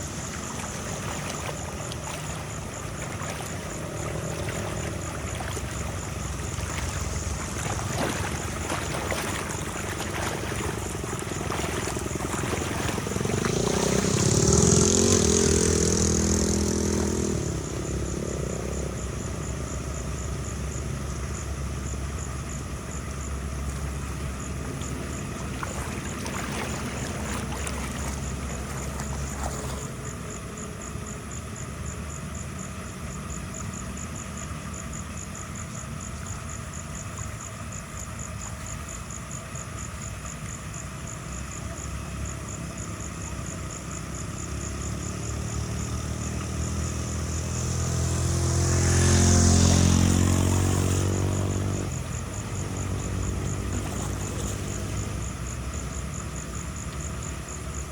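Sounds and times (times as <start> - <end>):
engine running steadily: 0.0 - 57.9
louder passing engine: 2.1 - 19.0, 44.3 - 55.3.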